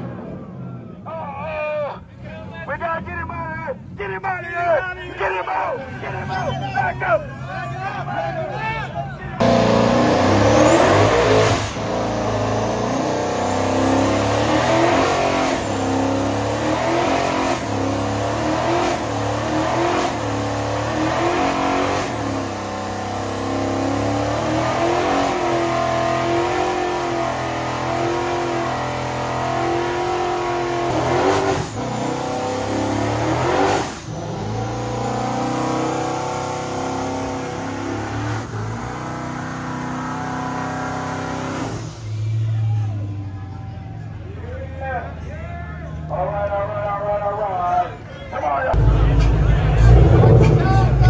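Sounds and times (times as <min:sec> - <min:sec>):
car engine revving hard: 0:09.4 - 0:42.0, 0:48.8 - 0:51.0.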